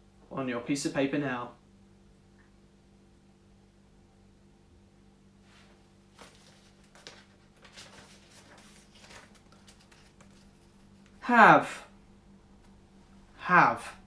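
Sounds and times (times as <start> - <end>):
faint steady hum: 0.0 - 14.0
soft clicks and rustles of handling: 5.6 - 11.2.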